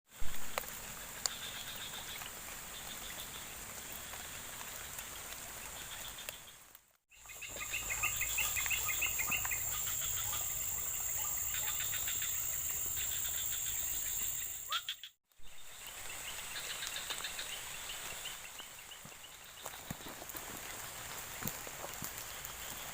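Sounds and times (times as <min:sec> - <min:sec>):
insects droning: 0:07.2 - 0:18.3
birds chirping and trilling: 0:07.2 - 0:19.8.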